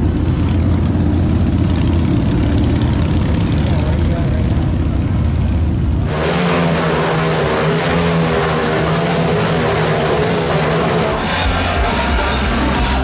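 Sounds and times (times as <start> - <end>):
low rumble: 6.0 - 11.3
motorcycle engine revving: 6.0 - 11.6.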